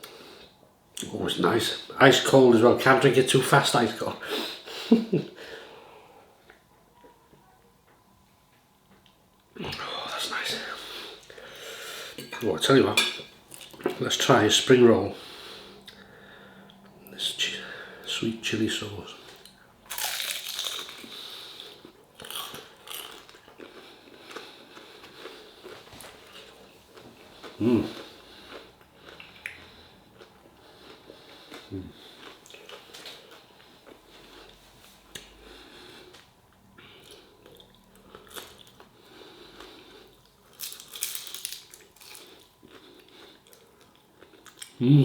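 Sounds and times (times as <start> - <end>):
chewing crispy spring roll: 19.3 - 36.3, 37.0 - 44.9
crunchy bite and chewing: 19.9 - 26.4, 39.6 - 44.8.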